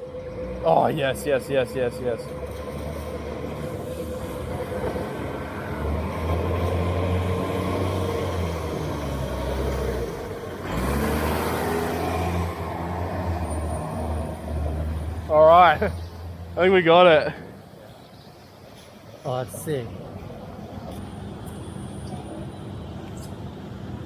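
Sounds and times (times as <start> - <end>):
large vehicle engine humming: 0.0 - 24.0
street noise hiss: 0.0 - 24.0
vehicle passing on wet road: 2.4 - 16.5.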